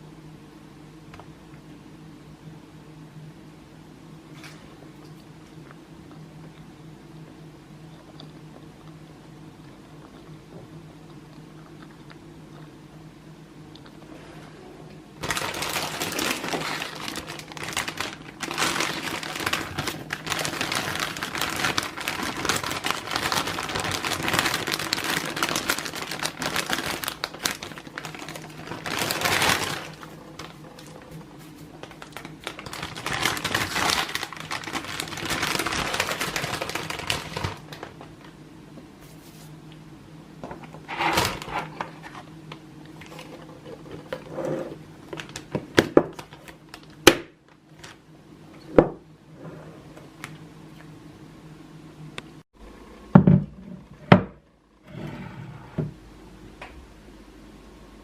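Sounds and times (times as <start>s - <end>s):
plastic packaging crinkling: 15.2s - 38.4s, 40.9s - 42.3s, 45.1s - 48.0s.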